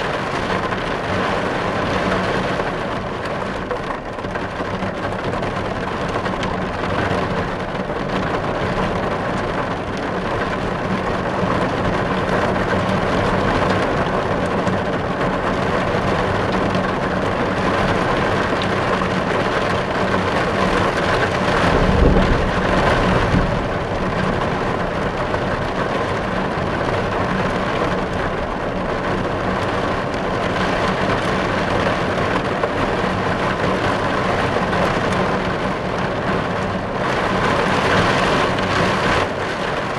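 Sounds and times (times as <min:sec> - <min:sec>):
heavy rain on car roof: 0:00.0 - 0:39.9
low rumble: 0:21.4 - 0:26.4.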